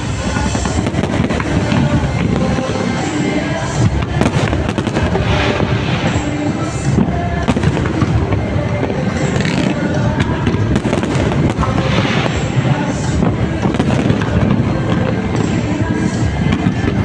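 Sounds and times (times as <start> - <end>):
fireworks bangs and crackles: 0.0 - 17.0
music playing: 0.0 - 17.0.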